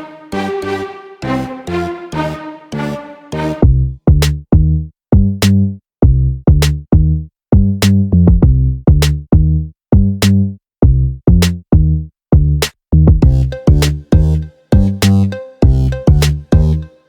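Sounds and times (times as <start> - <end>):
electronic music with drum machine: 13.2 - 17.0.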